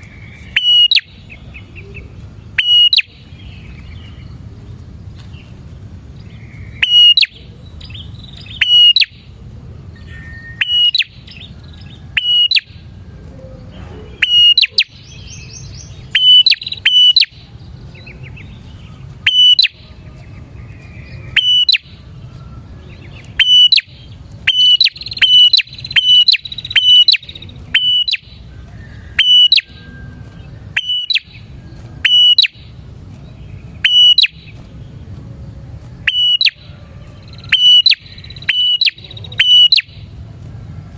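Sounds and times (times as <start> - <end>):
bird chirping sharply: 0.0 - 1.8, 2.5 - 4.4, 6.2 - 9.3, 10.0 - 12.8, 14.1 - 19.9, 20.7 - 22.0, 22.9 - 28.4, 29.1 - 34.7, 36.0 - 40.1
soft bird twittering: 0.0 - 40.2.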